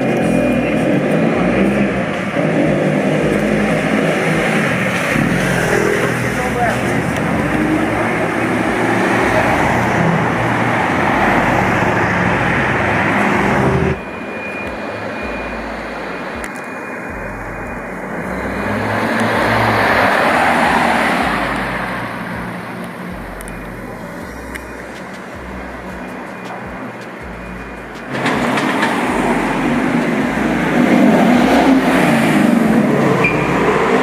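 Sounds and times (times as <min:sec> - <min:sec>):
cars passing on street: 0:00.0 - 0:34.0
vehicle passing by: 0:28.1 - 0:34.0.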